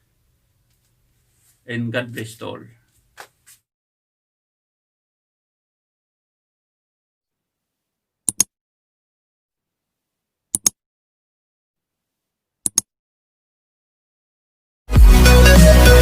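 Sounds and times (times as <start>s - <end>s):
sharp double clicks: 10.6s - 10.8s, 12.7s - 12.9s.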